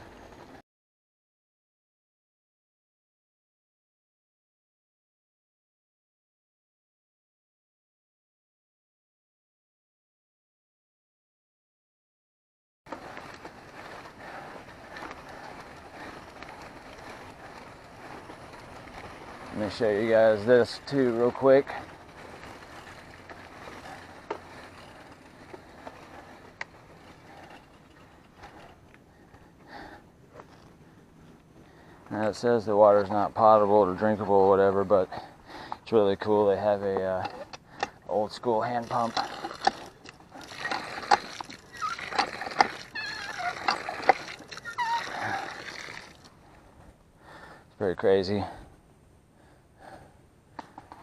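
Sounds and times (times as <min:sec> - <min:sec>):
bike tyres rolling on dirt: 0:00.0 - 0:00.6, 0:12.9 - 0:51.0
hand pump clanking and squeaking: 0:36.9 - 0:46.3
water splashing: 0:38.9 - 0:46.3.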